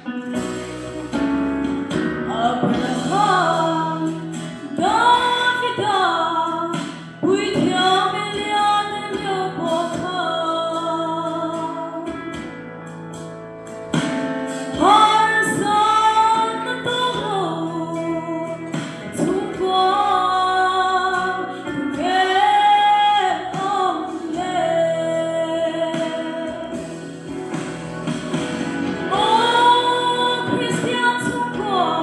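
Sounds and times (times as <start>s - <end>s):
instrumental accompaniment: 0.0s - 32.0s
woman singing gospel song: 2.3s - 12.2s, 14.7s - 27.0s, 29.1s - 32.0s.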